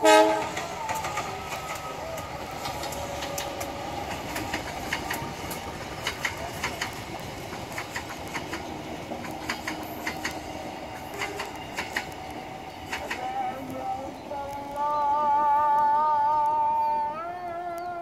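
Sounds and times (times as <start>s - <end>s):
train rumbling past: 0.0s - 17.6s
wheels clicking and clacking: 0.4s - 13.8s.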